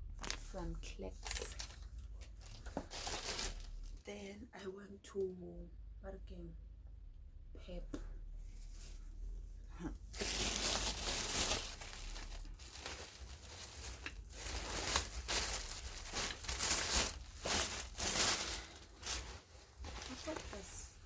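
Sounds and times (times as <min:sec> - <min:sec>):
shopping bag crinkling: 0:01.2 - 0:04.0, 0:10.2 - 0:21.0.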